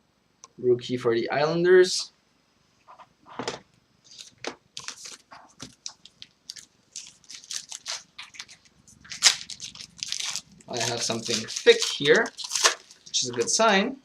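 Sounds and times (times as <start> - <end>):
card pack wrapper crinkling: 4.1 - 13.7.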